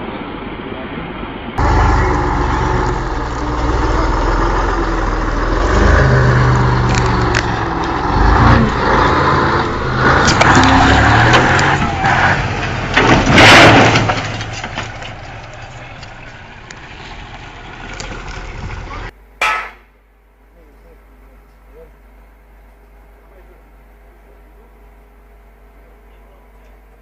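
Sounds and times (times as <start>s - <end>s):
heavy engine running: 1.3s - 19.1s.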